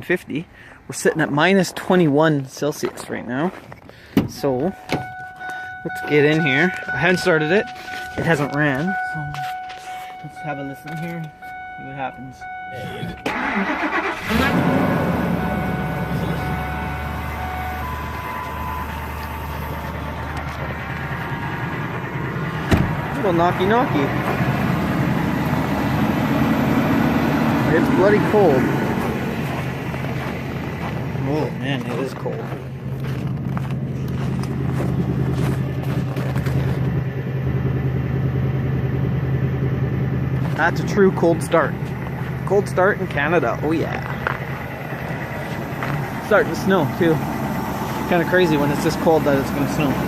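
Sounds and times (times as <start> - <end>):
truck engine idling with knock: 15.7 - 31.2, 31.8 - 48.1.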